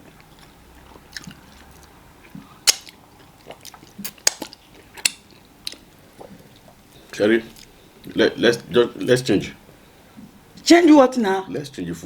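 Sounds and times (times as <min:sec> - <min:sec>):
chewing and mouth sounds: 0:00.0 - 0:08.7
wet mouth smacks: 0:02.3 - 0:06.8.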